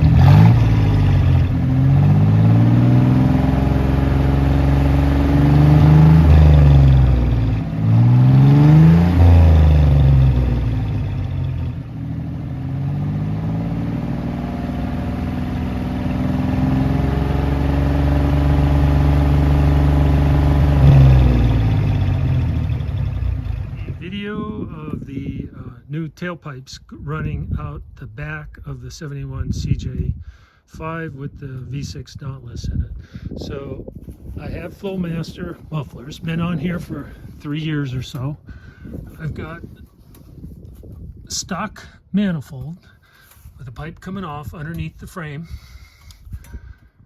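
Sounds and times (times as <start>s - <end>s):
car engine revving and idling: 0.0s - 24.1s.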